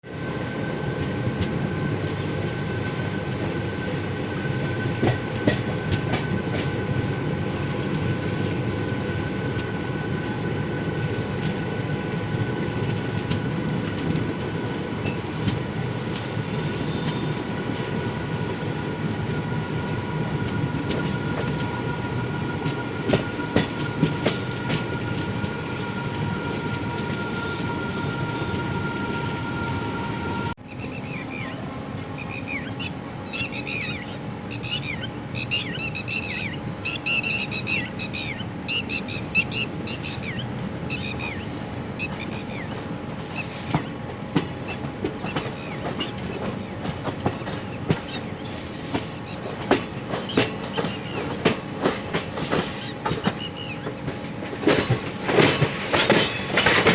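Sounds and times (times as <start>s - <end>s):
train wheels rumbling: 0.0s - 56.9s
wheels clacking on rail gaps: 4.6s - 6.8s, 22.6s - 28.7s, 33.4s - 56.9s.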